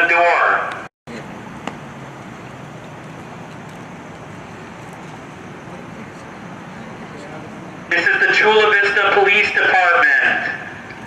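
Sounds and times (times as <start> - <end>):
distant traffic: 0.0 - 11.0
low hum of idling vehicles: 0.0 - 11.0.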